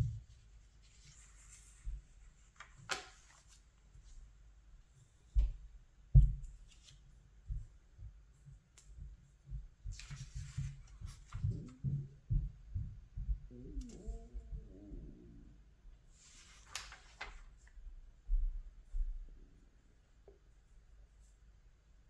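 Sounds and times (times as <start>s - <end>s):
paper page turning: 2.5s - 3.7s, 16.2s - 17.7s
soft bumps and taps of handling: 5.3s - 6.8s.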